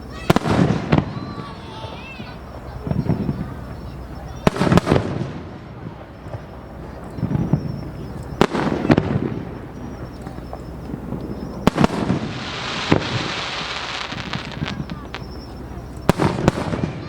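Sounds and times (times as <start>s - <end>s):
fireworks bangs: 0.0s - 17.0s
fireworks crackling hiss: 0.0s - 17.0s.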